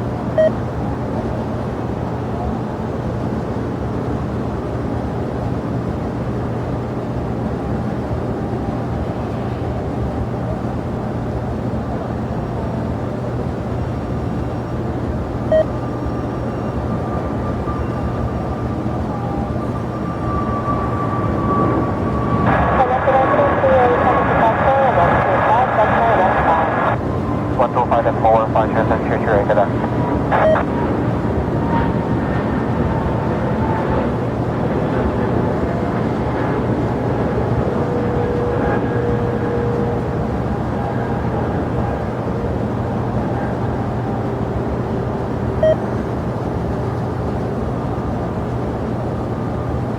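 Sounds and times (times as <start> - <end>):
faint steady whine: 0.0 - 49.9
jet engines droning: 0.0 - 49.9
short beep: 15.5 - 15.8, 30.4 - 30.7.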